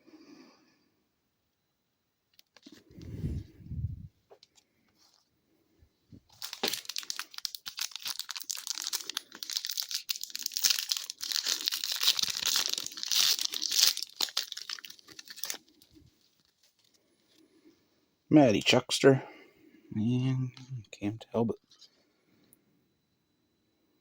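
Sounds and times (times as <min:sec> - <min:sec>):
wrapper crinkling: 0:06.3 - 0:17.0.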